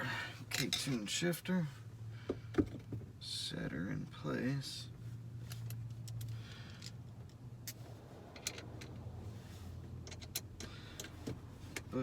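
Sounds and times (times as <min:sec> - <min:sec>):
low hum: 0:05.0 - 0:11.7.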